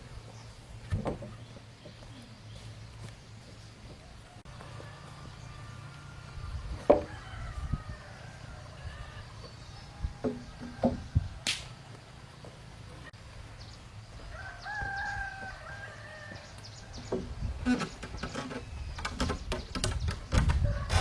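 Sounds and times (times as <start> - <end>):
rooster crowing: 4.2 - 9.3, 14.3 - 16.5
sharp knocks and clicks: 17.1 - 20.6.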